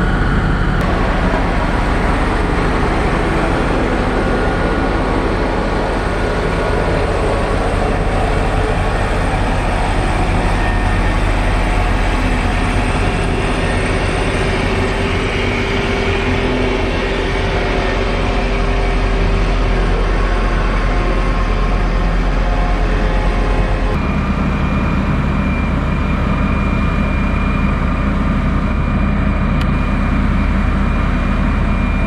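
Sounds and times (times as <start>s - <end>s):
heavy diesel engine running: 0.0s - 32.0s.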